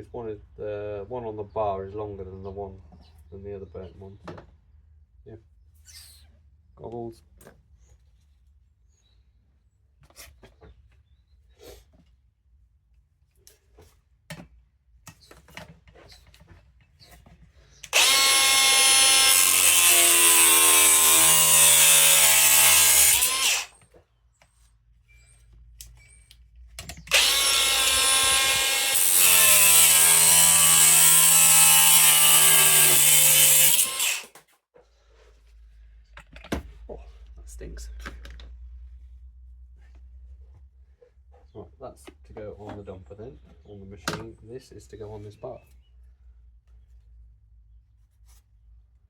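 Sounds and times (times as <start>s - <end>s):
angle grinder cutting metal: 17.9s - 23.8s, 27.1s - 34.4s.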